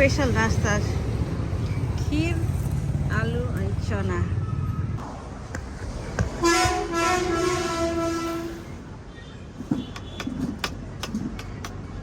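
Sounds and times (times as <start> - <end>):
vehicle horn long note: 6.4 - 8.7.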